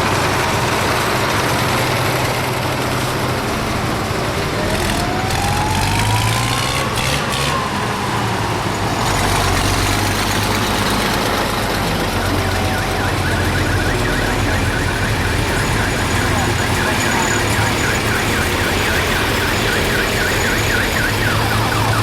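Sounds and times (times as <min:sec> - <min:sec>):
vehicle engines running: 0:00.0 - 0:22.0
wailing siren tone: 0:04.5 - 0:22.0.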